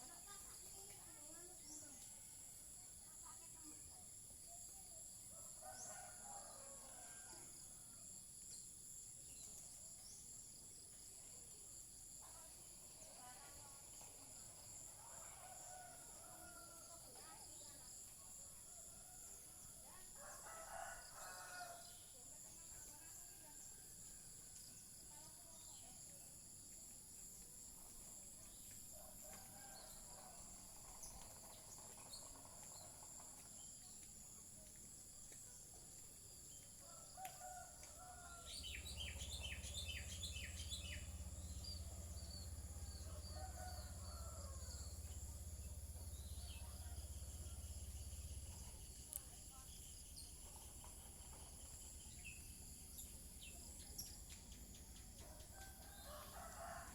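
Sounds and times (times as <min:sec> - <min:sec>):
distant rooster crowing: 0:18.9 - 0:21.9, 0:36.8 - 0:48.4, 0:55.3 - 0:56.9
small birds chirping: 0:30.8 - 0:56.8.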